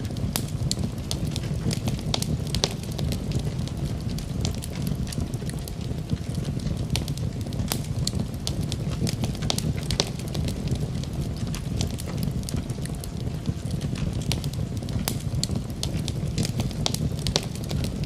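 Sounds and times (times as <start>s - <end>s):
low rumble of flames: 0.0s - 18.0s
wood fire crackling: 0.0s - 18.0s
sharp pops: 7.7s - 10.8s, 15.0s - 17.9s.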